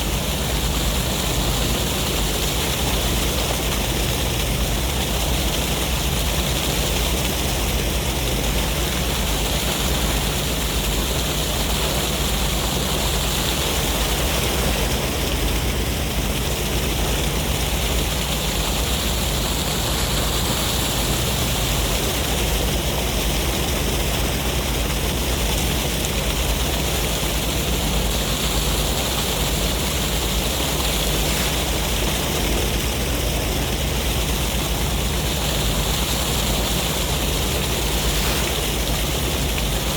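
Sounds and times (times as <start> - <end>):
ocean waves washing ashore: 0.0 - 39.9
sea breeze: 0.0 - 39.9.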